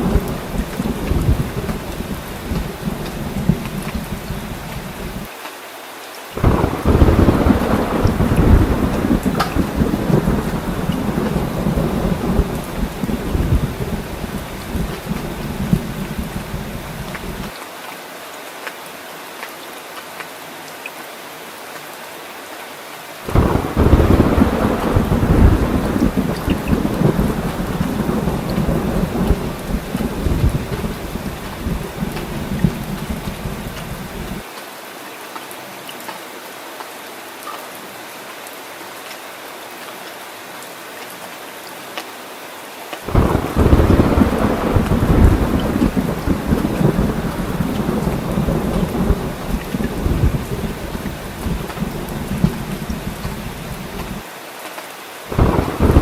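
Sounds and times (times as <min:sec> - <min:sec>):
thunder clap and rumble: 0:00.0 - 0:05.3, 0:06.4 - 0:17.5, 0:23.3 - 0:34.4, 0:43.1 - 0:54.2, 0:55.3 - 0:56.0
steady rain falling: 0:00.0 - 0:56.0.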